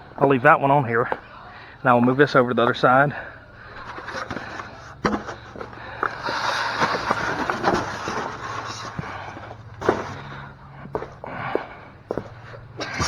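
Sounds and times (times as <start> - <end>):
parts knocking and clattering: 3.7 - 13.0
packaging rustling: 3.8 - 10.4.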